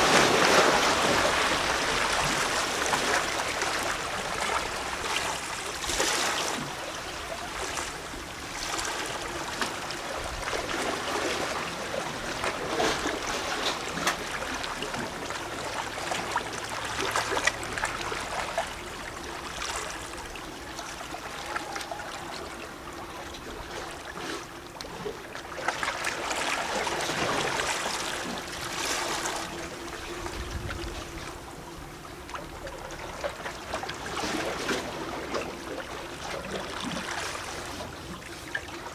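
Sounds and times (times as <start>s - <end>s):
small waves lapping on rocks: 0.0s - 31.5s
water sloshing and gurgling: 0.0s - 38.9s.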